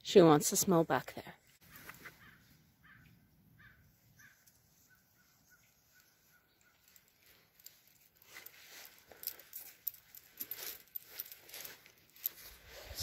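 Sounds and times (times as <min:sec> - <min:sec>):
faint bird calls: 0:01.6 - 0:07.0
soft rustling: 0:04.2 - 0:13.0.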